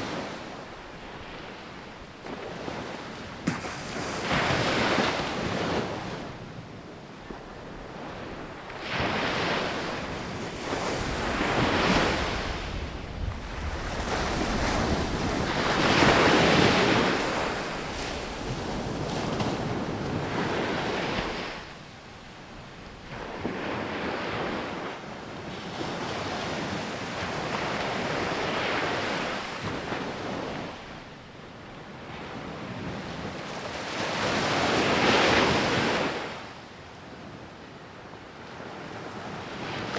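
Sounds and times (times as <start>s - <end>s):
ocean waves breaking on beach: 0.0s - 31.1s
wind rumble on microphone: 5.4s - 21.7s.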